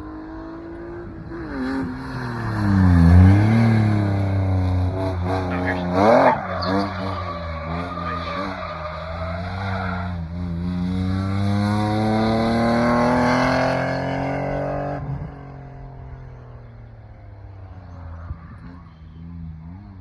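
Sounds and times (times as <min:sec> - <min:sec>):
car engine revving hard: 0:01.8 - 0:15.3
tyres skidding: 0:02.2 - 0:14.2.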